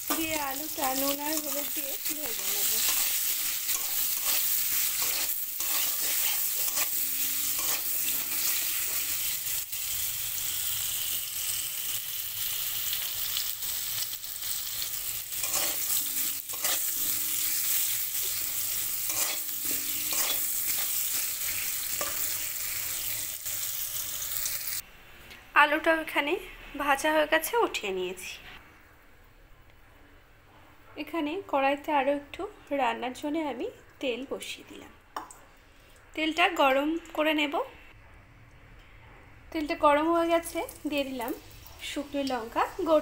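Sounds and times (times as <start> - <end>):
metal spatula scraping pan: 0.0 - 9.4, 15.3 - 23.6
potatoes sizzling in hot oil: 0.0 - 24.8, 40.0 - 43.0.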